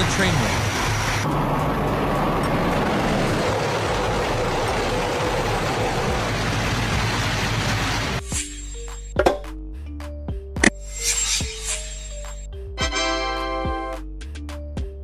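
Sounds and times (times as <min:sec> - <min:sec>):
high speed train passing: 0:00.0 - 0:08.2.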